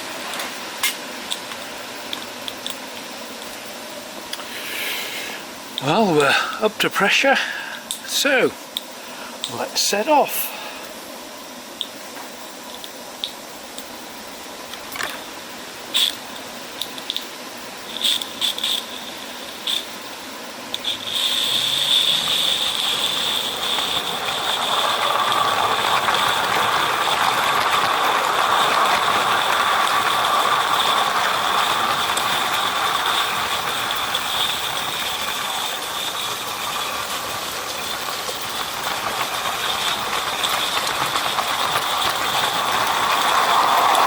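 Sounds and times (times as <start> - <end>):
steam locomotive hissing: 3.8 - 11.6, 14.3 - 44.0
clatter of small wheels and wagons: 14.7 - 20.0, 20.7 - 44.0.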